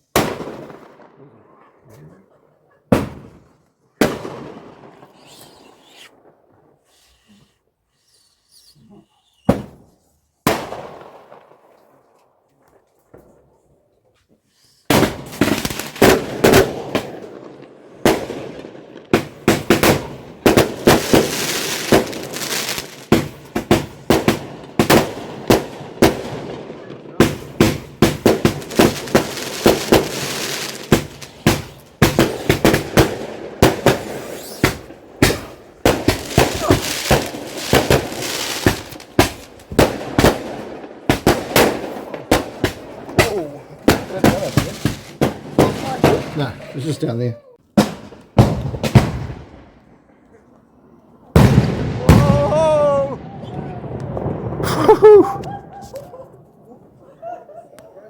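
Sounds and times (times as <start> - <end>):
firework crackling: 4.0 - 8.3, 14.9 - 18.4, 19.2 - 46.4
firework shells bursting: 27.2 - 46.4.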